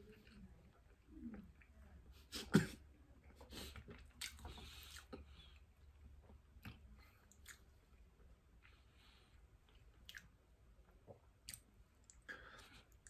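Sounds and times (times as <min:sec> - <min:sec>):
chewing a sandwich: 0:03.2 - 0:13.0
wet mouth sounds: 0:06.6 - 0:07.7, 0:10.0 - 0:10.4.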